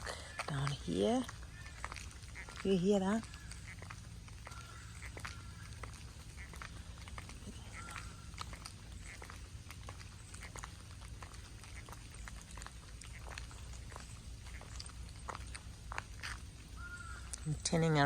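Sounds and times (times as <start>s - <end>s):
water drops pattering on leaves: 0.0s - 18.0s.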